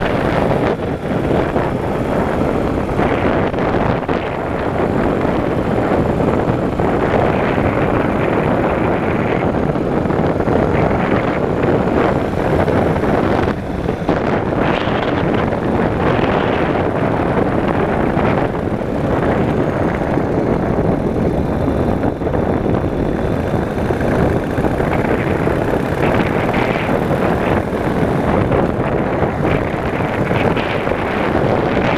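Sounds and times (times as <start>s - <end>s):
motorcycle running: 0.0s - 31.9s
wind rushing over microphone: 0.0s - 31.9s.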